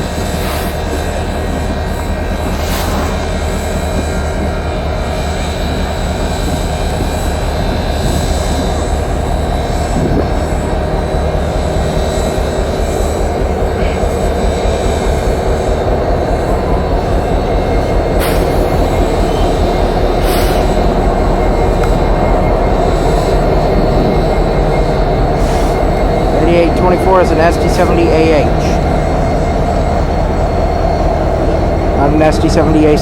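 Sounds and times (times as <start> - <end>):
large engine droning: 0.0 - 33.0
short hisses: 2.4 - 4.0.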